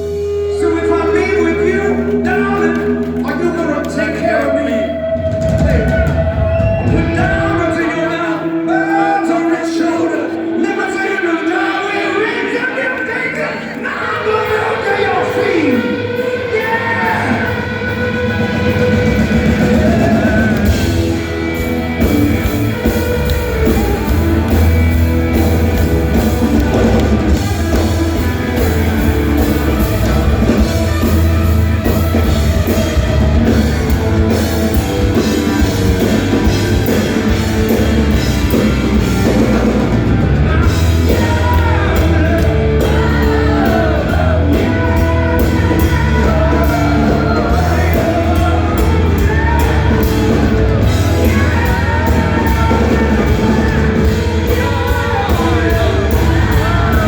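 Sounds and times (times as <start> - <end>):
drum kit: 0.0 - 8.4, 15.3 - 57.0
bass guitar: 0.0 - 10.6, 15.2 - 57.0
person singing: 13.5 - 57.0
electric guitar: 15.2 - 57.0.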